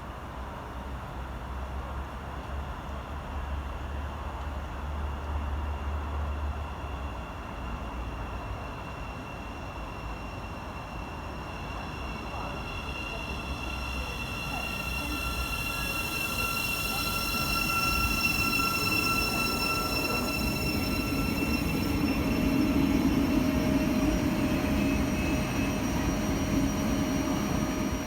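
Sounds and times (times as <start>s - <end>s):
train wheels rumbling on track: 0.0s - 28.0s
steady high-pitched tones: 7.7s - 28.0s.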